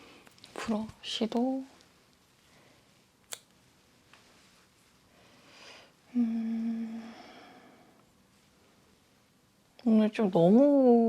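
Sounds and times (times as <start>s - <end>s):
soft breath-like hiss: 4.2s - 8.8s
woman humming: 6.1s - 7.2s.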